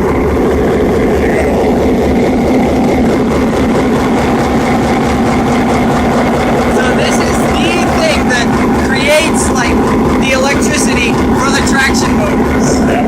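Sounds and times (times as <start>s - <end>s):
diesel locomotive engine idling: 0.0s - 13.0s.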